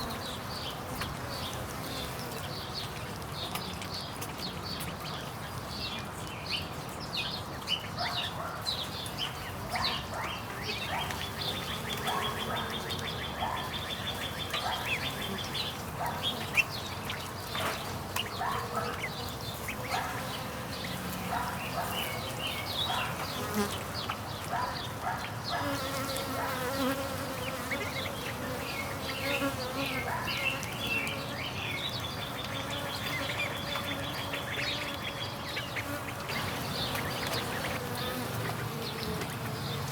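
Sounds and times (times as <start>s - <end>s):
honey bees buzzing: 10.1s - 39.9s.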